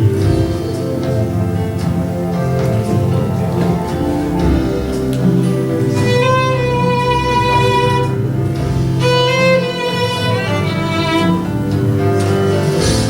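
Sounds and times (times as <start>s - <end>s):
sustained low accompaniment: 0.0s - 13.0s
violin playing slow melody: 4.4s - 12.8s.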